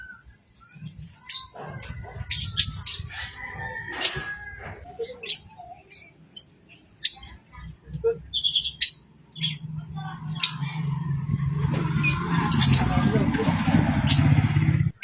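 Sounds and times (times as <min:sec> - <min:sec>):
lovebird chirping: 0:00.0 - 0:13.1.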